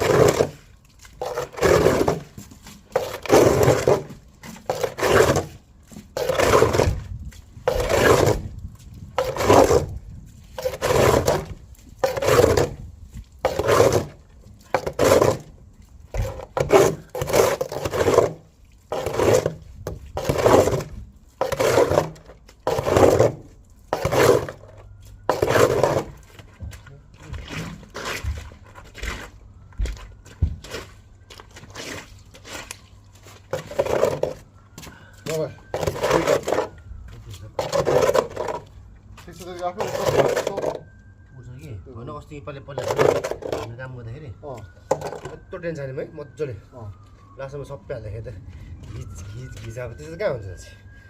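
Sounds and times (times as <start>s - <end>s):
shovel scraping and digging soil: 0.0s - 26.6s, 27.2s - 34.5s, 35.2s - 40.9s, 42.7s - 43.8s.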